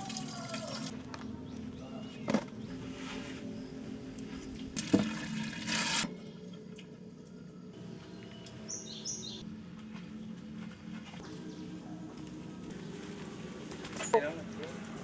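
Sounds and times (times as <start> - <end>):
water splashing and pouring: 4.8 - 6.1.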